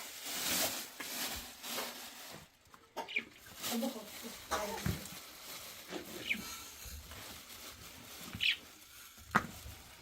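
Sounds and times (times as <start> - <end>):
bird chirping: 3.0 - 3.5, 6.1 - 6.5, 8.4 - 8.7.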